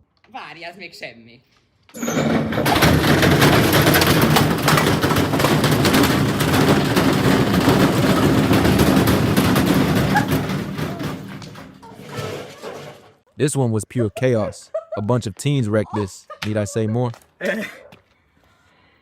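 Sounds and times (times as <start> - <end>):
bricks clattering in washing machine: 2.0 - 13.2.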